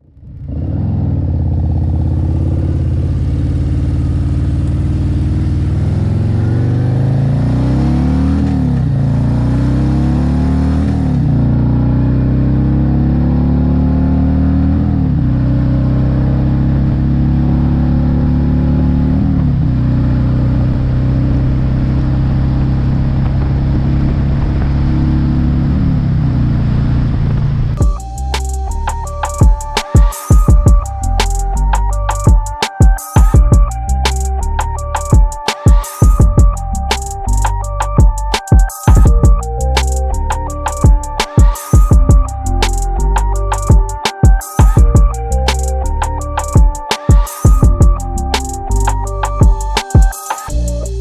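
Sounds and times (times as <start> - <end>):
motorcycle accelerating and shifting: 0.0 - 29.8.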